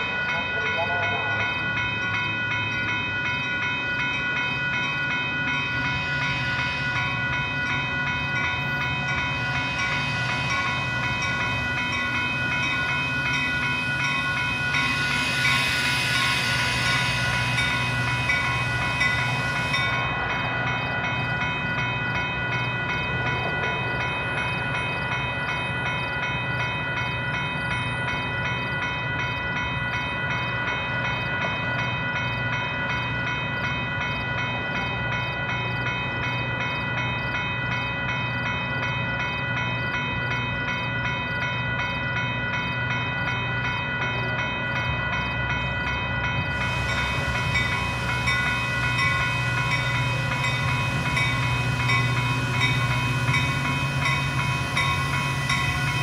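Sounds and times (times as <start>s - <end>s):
diesel locomotive hum: 0.0s - 56.0s
grade crossing bells ringing: 0.0s - 56.0s
hiss: 14.8s - 19.9s, 46.5s - 56.0s.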